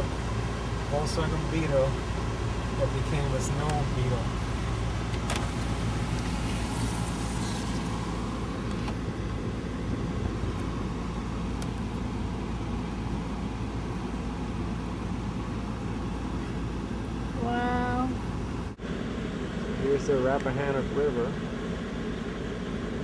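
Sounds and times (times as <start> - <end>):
car engine rumble: 0.0 - 23.0
tyre and road noise: 0.0 - 23.0.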